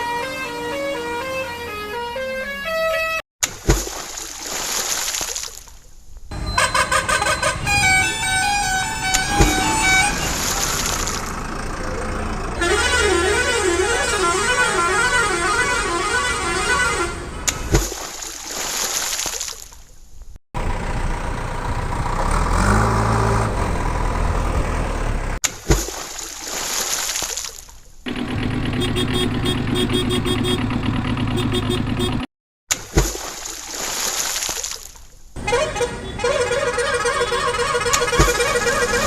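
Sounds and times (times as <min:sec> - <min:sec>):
wavering horn: 0:00.0 - 0:03.2, 0:06.3 - 0:10.8, 0:12.6 - 0:17.3, 0:35.4 - 0:39.0
fast repeating toot: 0:06.3 - 0:10.4, 0:35.4 - 0:39.0
vehicle engine sounds: 0:06.3 - 0:17.7, 0:20.6 - 0:25.4, 0:28.1 - 0:32.3, 0:35.4 - 0:39.0.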